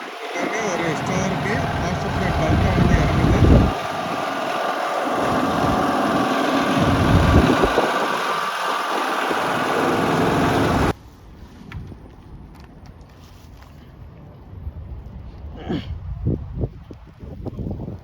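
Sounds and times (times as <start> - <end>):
wind buffeting microphone: 0.0 - 10.9, 14.5 - 18.0
vehicle engine running: 0.0 - 11.0.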